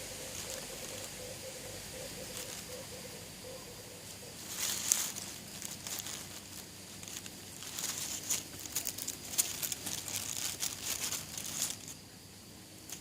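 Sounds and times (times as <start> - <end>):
dry crinkling and rustling: 0.3 - 1.2, 2.2 - 2.8, 4.4 - 12.0.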